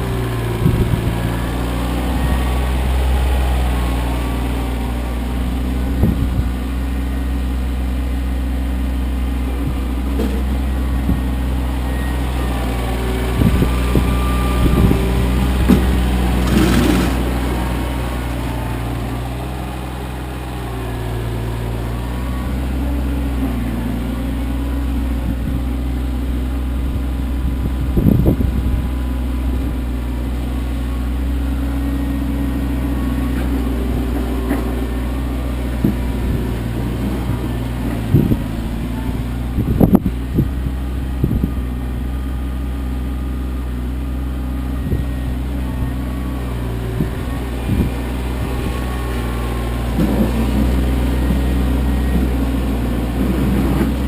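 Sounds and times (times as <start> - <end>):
tractor diesel engine running: 0.0 - 54.0
knocks and clunks: 14.7 - 17.4.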